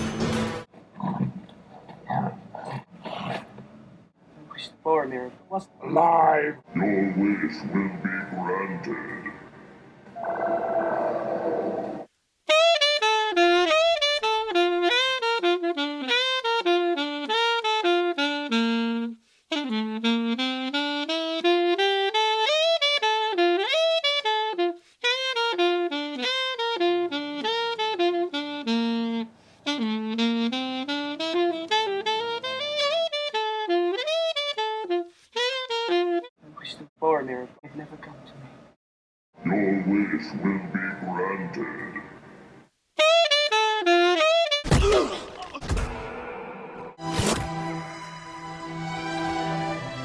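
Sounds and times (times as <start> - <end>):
solo saxophone playing: 12.5 - 36.4, 43.0 - 44.6, 47.0 - 50.0.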